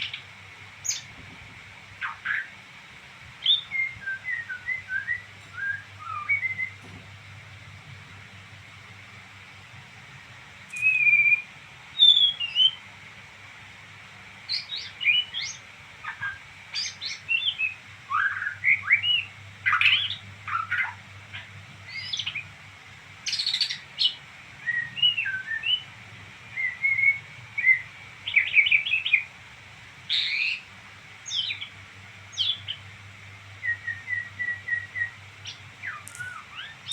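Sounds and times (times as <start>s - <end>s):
songbird twittering: 0.0s - 1.1s, 3.4s - 6.8s, 10.7s - 12.8s, 14.5s - 22.4s, 23.2s - 25.8s, 26.5s - 29.3s, 30.1s - 31.7s, 32.3s - 32.8s, 33.6s - 36.9s
faint low hum: 0.0s - 36.9s.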